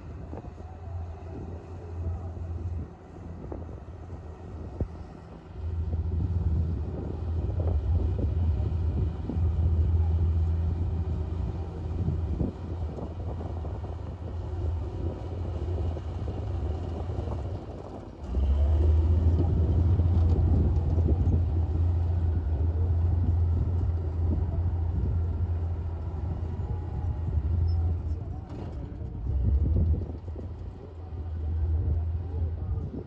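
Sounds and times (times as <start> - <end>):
bulldozer diesel engine rumbling: 0.0 - 33.0.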